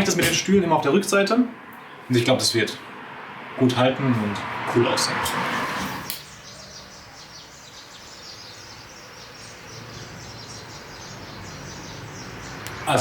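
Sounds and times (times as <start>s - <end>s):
small birds chirping: 5.2s - 13.0s
sharp click: 6.0s - 6.3s.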